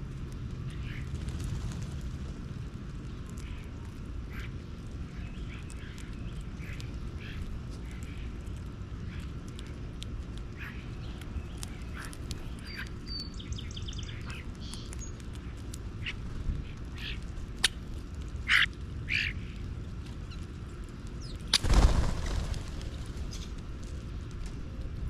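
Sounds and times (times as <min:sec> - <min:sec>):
low steady rumble: 0:00.0 - 0:25.0
bird calls: 0:04.3 - 0:08.4, 0:10.5 - 0:17.8, 0:18.4 - 0:19.6.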